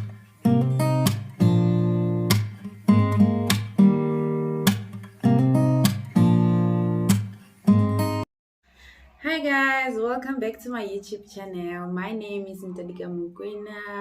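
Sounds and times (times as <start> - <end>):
acoustic guitar strumming: 0.0 - 8.2.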